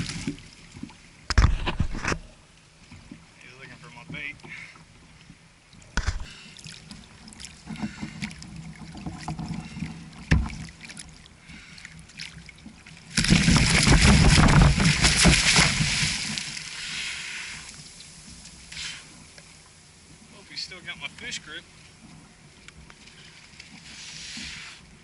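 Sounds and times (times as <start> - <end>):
knocks on a kayak: 10.3 - 10.6, 13.2 - 16.0.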